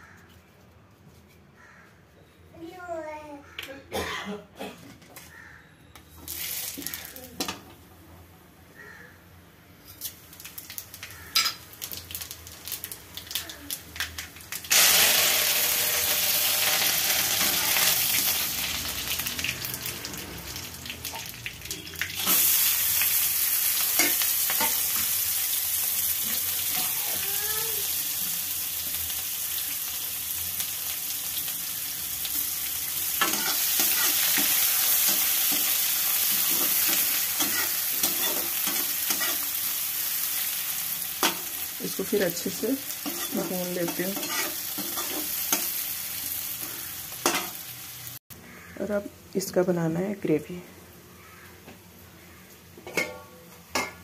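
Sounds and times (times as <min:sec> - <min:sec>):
food sizzling in hot oil: 0:06.2 - 0:07.5, 0:10.0 - 0:48.2
steel spoon scraping a pan: 0:23.8 - 0:25.1, 0:33.2 - 0:39.7, 0:43.0 - 0:45.8.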